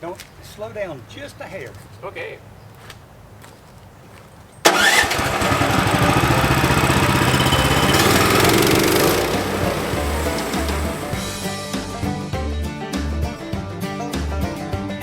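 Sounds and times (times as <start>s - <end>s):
sawmill engine running: 4.7s - 11.6s.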